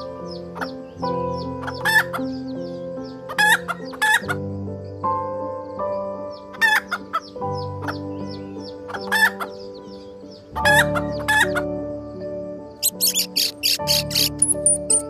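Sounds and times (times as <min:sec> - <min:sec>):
chickens clucking: 0:00.0 - 0:02.4, 0:03.3 - 0:04.4, 0:06.5 - 0:09.8, 0:10.6 - 0:11.7, 0:12.8 - 0:15.0
gentle background music: 0:00.0 - 0:15.0
loud chicken calls: 0:03.3 - 0:04.4, 0:12.8 - 0:14.5.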